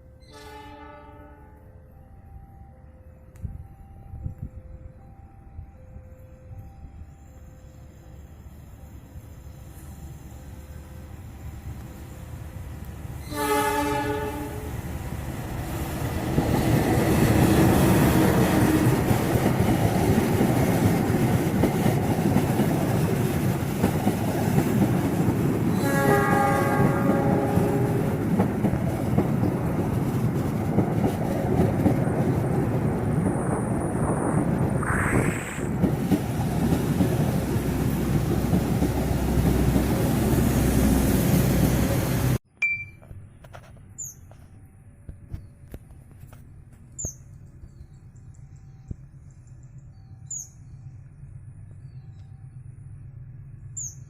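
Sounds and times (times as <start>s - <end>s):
train rumbling past: 0.0s - 42.4s
train horn: 0.2s - 2.0s, 13.2s - 14.9s, 17.8s - 19.1s, 25.7s - 28.3s
wheels clacking on rails: 11.5s - 34.8s, 35.7s - 42.4s.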